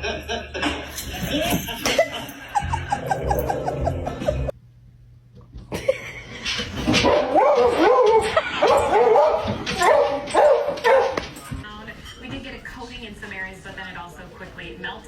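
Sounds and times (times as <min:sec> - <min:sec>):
dog yipping: 0:07.0 - 0:11.2.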